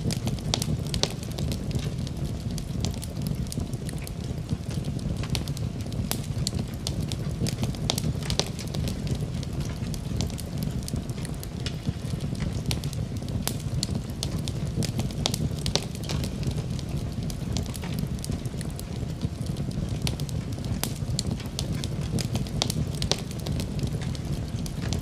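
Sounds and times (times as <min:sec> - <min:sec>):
fire crackling and popping: 0:00.0 - 0:25.0
low rumble of flames: 0:00.0 - 0:25.0.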